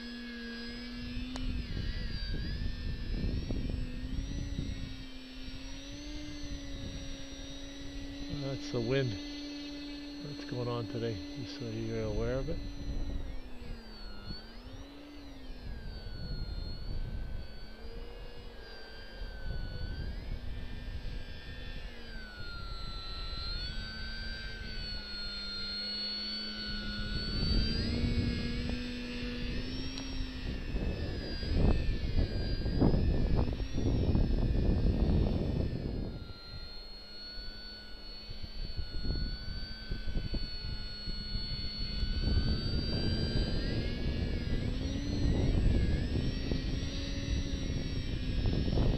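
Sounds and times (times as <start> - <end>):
electric motor and propeller whining: 0.0 - 48.9
wind buffeting microphone: 1.0 - 9.0, 26.6 - 36.6, 38.3 - 48.9.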